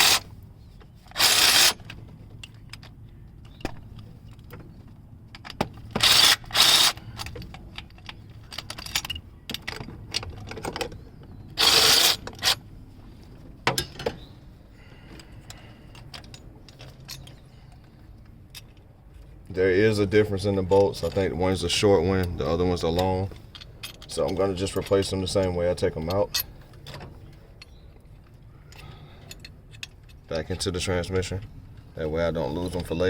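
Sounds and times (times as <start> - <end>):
impact wrench spinning bolts: 0.0 - 0.2, 1.1 - 1.8, 5.9 - 7.1, 11.6 - 12.6
metallic clinks of bolts and tools: 5.3 - 11.0, 22.2 - 30.3.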